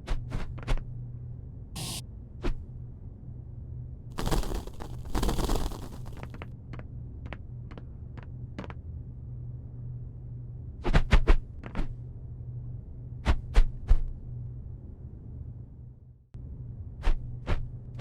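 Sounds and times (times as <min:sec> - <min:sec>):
steady low hum: 0:01.1 - 0:06.4.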